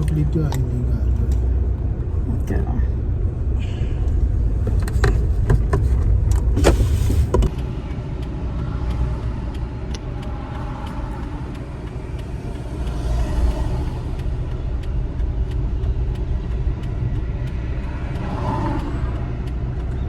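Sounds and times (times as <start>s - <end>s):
engine and road rumble: 0.0s - 20.0s
sharp clicks: 7.4s - 20.0s.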